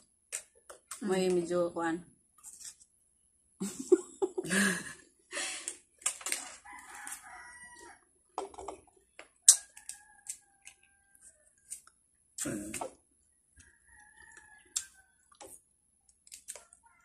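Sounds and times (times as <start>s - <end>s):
crunching and chewing fruit: 0.3s - 1.2s, 5.7s - 17.0s.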